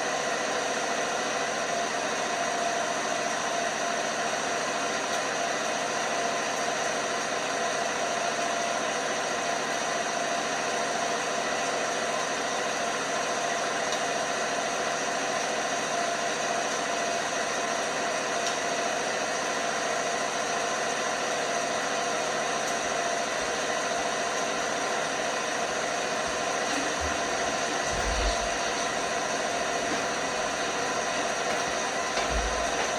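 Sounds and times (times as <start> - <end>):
washing machine running: 22.2 - 32.9
soft low knocks: 26.3 - 32.9.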